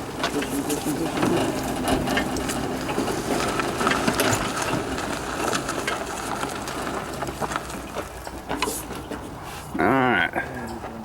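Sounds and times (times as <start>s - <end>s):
wheels crunching over rough ground: 0.0s - 11.0s.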